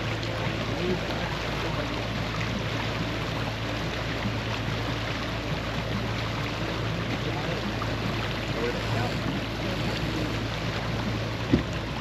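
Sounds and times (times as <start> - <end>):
low steady hum: 0.0 - 12.0
water rushing along boat hull: 0.0 - 12.0.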